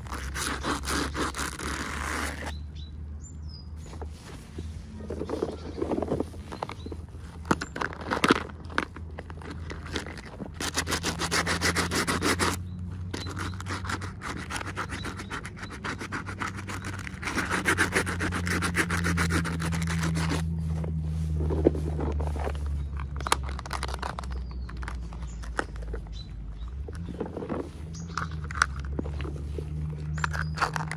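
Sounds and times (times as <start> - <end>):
rubbing and scraping strokes: 0.0 - 2.6, 3.8 - 30.9.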